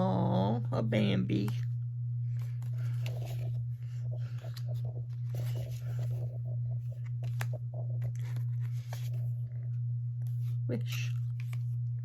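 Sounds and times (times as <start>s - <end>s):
steady low hum: 0.0s - 12.0s
paper cards rustling: 2.3s - 11.9s.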